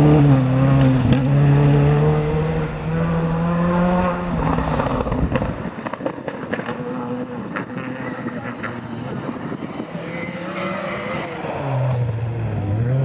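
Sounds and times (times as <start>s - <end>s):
rally car engine high revs: 0.0s - 13.0s
exhaust pops and cracks: 0.1s - 6.8s.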